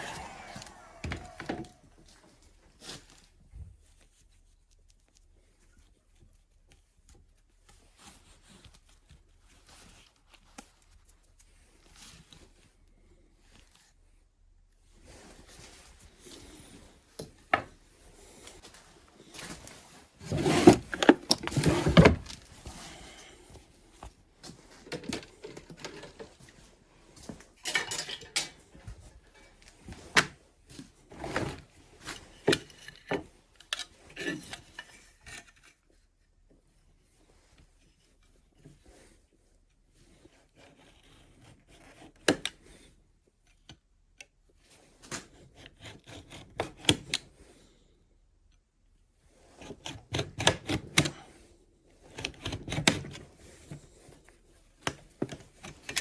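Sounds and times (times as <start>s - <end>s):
scraping rubs: 0.0s - 1.8s.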